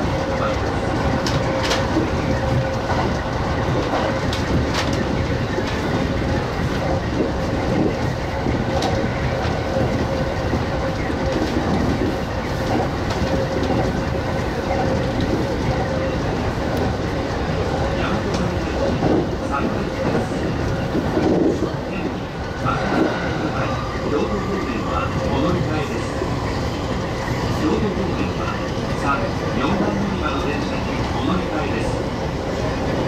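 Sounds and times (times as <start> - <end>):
train wheels rumbling on rail: 0.0 - 33.0
train whine: 0.0 - 33.0.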